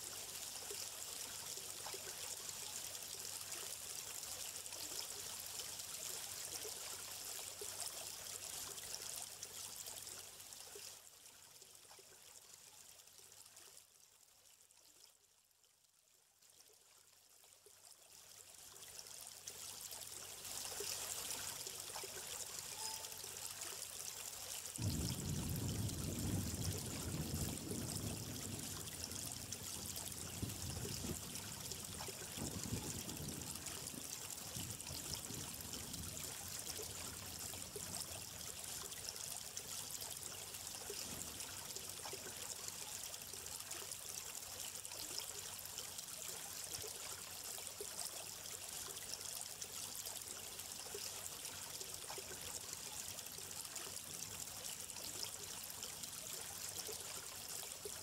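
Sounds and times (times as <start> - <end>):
stream trickling and splashing: 0.0 - 58.0.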